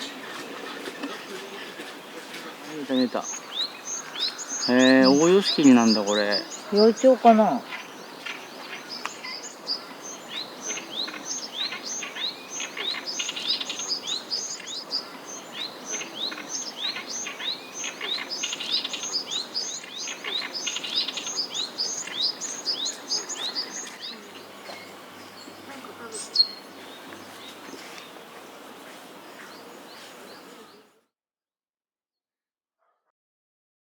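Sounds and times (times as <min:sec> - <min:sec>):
warbler singing harsh chattering song: 0:02.6 - 0:27.9.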